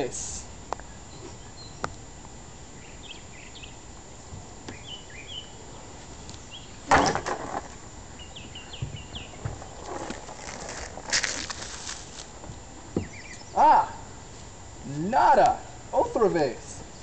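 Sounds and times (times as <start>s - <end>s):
outdoor background noise: 0.0s - 17.0s
small birds chirping: 0.7s - 6.9s, 8.0s - 10.8s, 12.5s - 14.3s, 15.4s - 17.0s.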